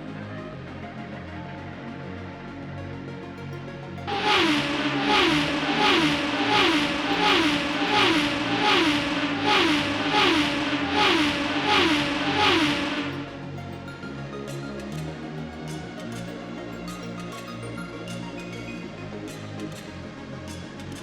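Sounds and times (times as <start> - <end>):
racing car engine revving: 4.1 - 13.5.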